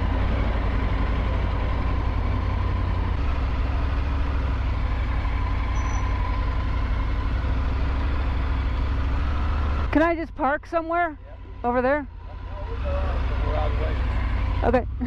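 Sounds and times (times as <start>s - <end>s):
motorcycle engine rumbling: 0.0s - 15.0s.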